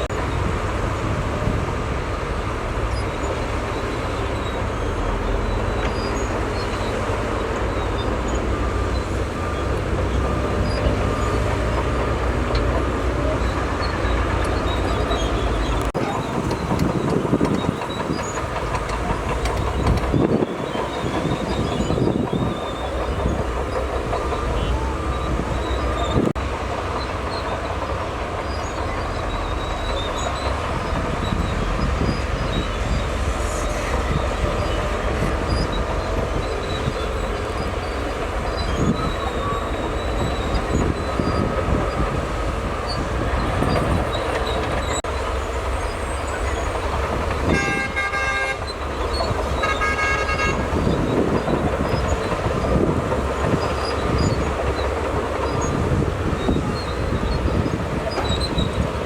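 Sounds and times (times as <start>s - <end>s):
bulldozer diesel engine running: 0.0s - 59.0s
machinery clanking: 2.4s - 59.0s
vehicle horn: 47.4s - 48.8s, 49.5s - 51.0s.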